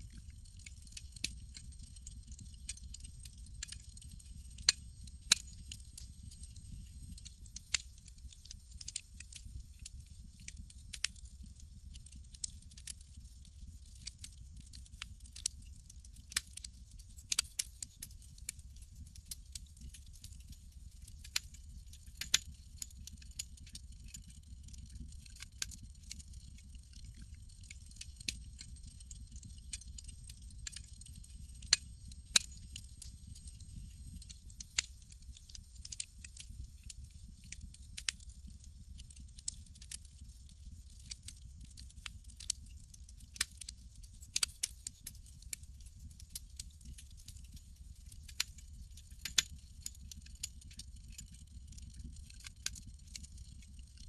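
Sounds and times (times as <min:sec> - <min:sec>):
campfire crackling: 0:00.1 - 0:10.4, 0:17.2 - 0:17.7, 0:22.2 - 0:23.8, 0:24.4 - 0:37.0, 0:49.3 - 0:50.8.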